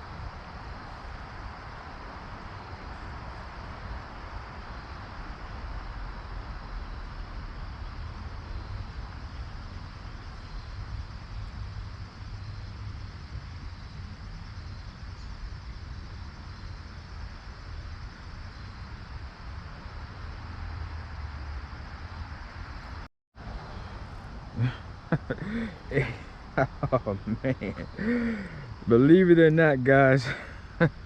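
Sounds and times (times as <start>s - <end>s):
high insect chirping: 0.0s - 31.0s
creek water rushing: 23.4s - 31.0s.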